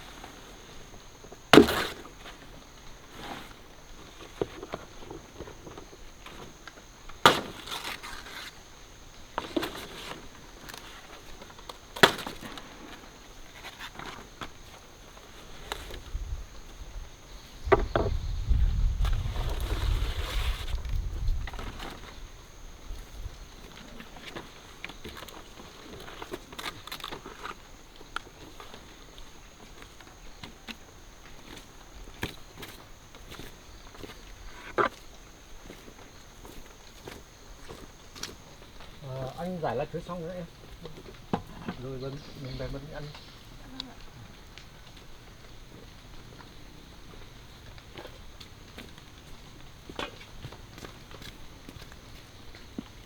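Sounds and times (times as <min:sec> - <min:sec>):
rustling: 0:00.0 - 0:16.6, 0:18.0 - 0:22.3
sharp chopping strikes: 0:01.6 - 0:02.1, 0:07.2 - 0:07.8.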